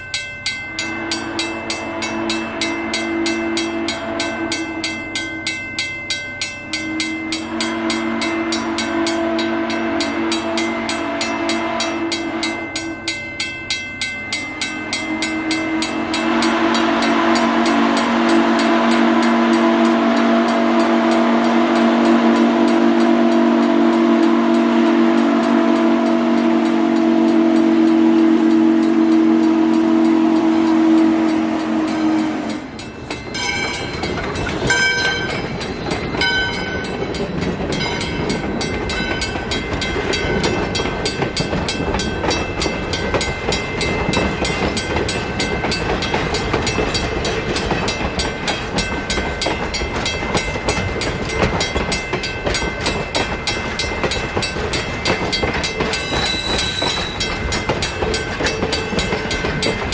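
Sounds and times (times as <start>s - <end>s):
train chime whistle blasts: 0.0s - 35.5s, 55.7s - 57.5s.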